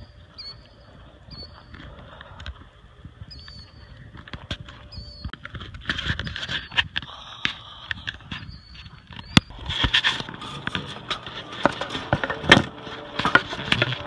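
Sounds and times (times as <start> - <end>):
short high chirping calls: 0.0 - 1.7, 3.3 - 4.0, 4.9 - 5.4, 8.4 - 9.5
noisy crackling: 0.0 - 14.0.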